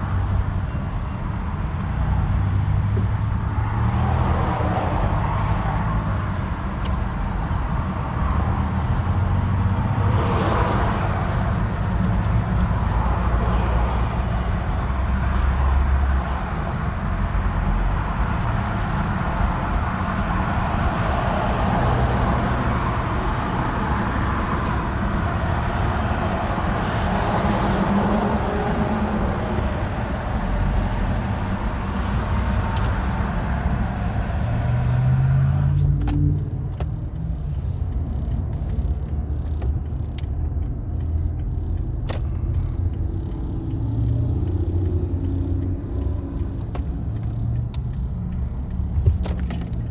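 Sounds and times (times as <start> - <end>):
vehicle engines and road noise: 0.0 - 49.9
sharp clicks: 35.7 - 49.9.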